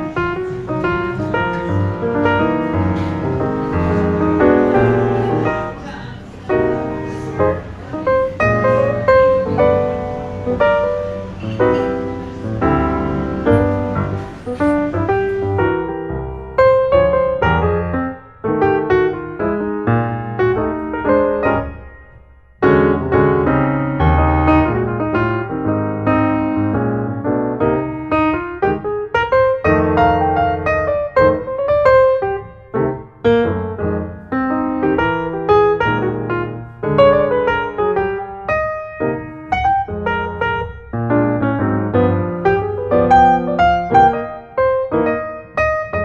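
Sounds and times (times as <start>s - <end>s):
piano background music: 0.0s - 46.0s.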